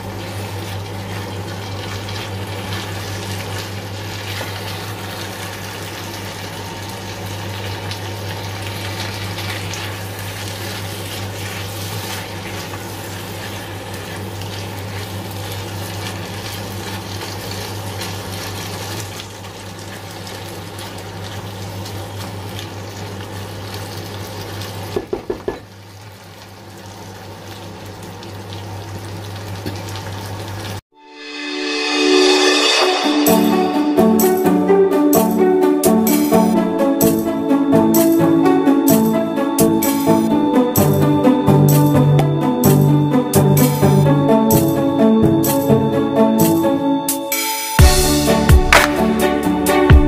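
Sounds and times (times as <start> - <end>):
spatula stirring food: 0.0 - 6.2, 9.3 - 19.0
chicken sizzling in a wok: 0.0 - 34.1
cooktop low hum: 0.0 - 50.0
music: 30.9 - 50.0.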